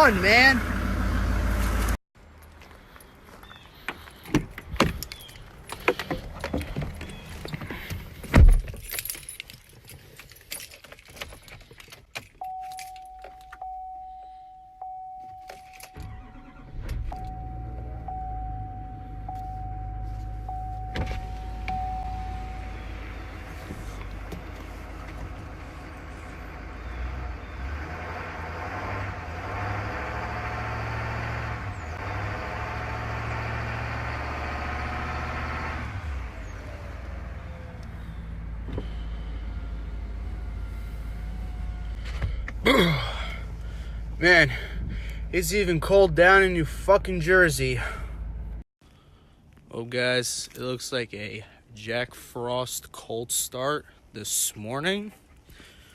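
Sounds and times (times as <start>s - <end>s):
diesel engine starting and idling: 0.0s - 2.0s, 15.8s - 49.3s
keys jangling: 8.4s - 13.6s
dashboard chime: 12.4s - 16.0s, 17.2s - 22.8s
door shutting: 15.9s - 17.4s.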